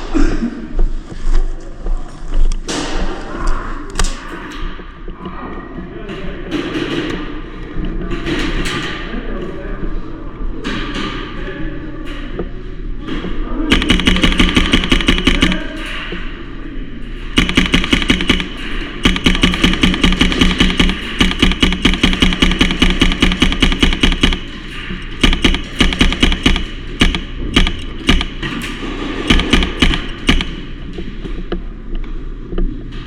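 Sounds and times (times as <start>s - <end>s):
airsoft gun firing bursts: 13.7s - 15.9s, 17.4s - 30.8s.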